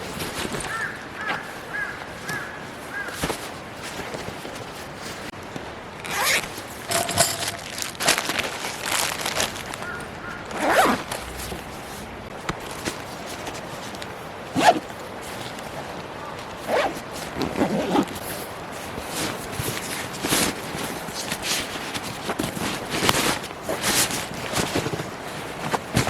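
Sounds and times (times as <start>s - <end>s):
zipper pulled: 6.0s - 8.2s, 10.6s - 11.6s, 14.5s - 14.9s, 16.6s - 18.3s.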